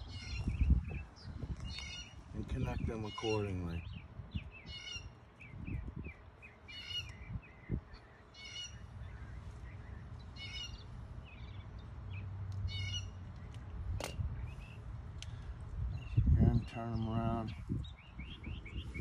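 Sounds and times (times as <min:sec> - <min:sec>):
soft bird chirps: 0:00.0 - 0:19.0
bird squawking: 0:08.3 - 0:09.2, 0:10.3 - 0:10.9, 0:12.7 - 0:13.2.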